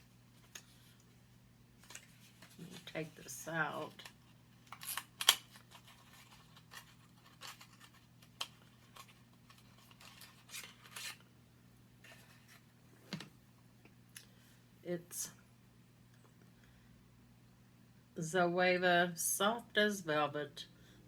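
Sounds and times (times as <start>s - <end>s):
packaging crinkling and clicking: 4.0s - 11.2s.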